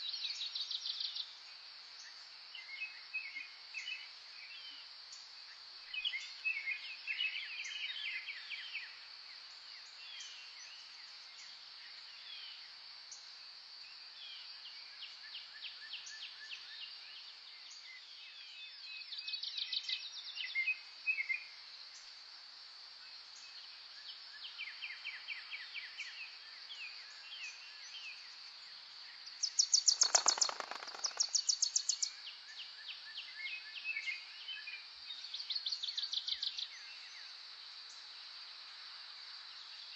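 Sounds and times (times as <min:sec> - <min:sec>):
songbirds singing: 0:00.0 - 0:22.1, 0:23.1 - 0:39.9
high insect drone: 0:20.5 - 0:39.9.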